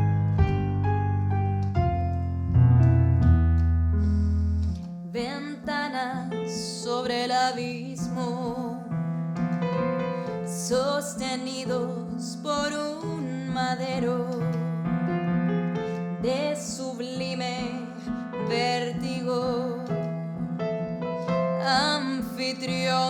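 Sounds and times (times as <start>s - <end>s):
piano chords: 0.0s - 23.0s
woman singing with vibrato: 5.2s - 8.9s, 10.5s - 15.0s, 16.2s - 20.6s, 21.6s - 23.0s.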